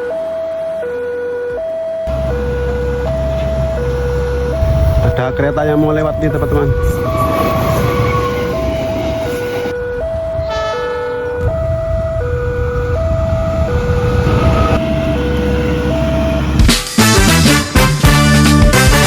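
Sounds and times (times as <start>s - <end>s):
low engine rumble: 2.1s - 10.5s
train horn blast: 6.7s - 11.5s, 12.4s - 19.0s.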